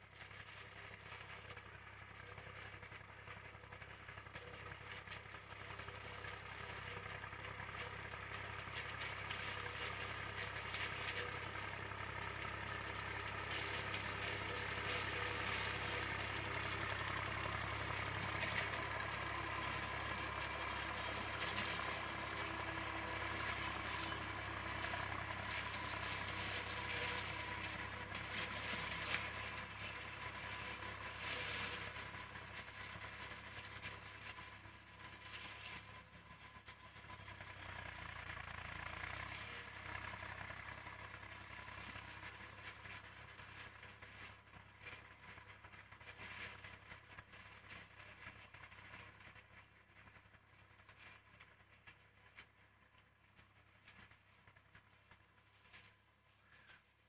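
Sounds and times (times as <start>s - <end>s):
forage harvester working: 0.0s - 57.0s
tractor diesel engine running: 0.0s - 57.0s.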